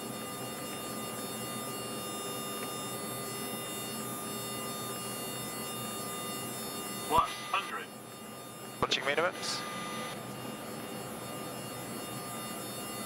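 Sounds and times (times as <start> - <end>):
thin steady tones: 0.0 - 13.0.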